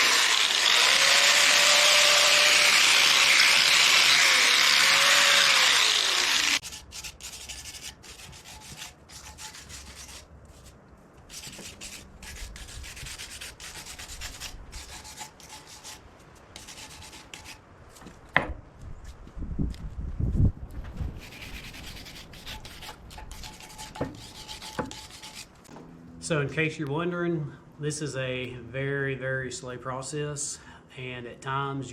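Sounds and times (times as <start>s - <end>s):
wire wheel grinding metal: 0.0s - 10.1s
scraping and rubbing on metal: 6.6s - 16.0s, 21.2s - 25.7s.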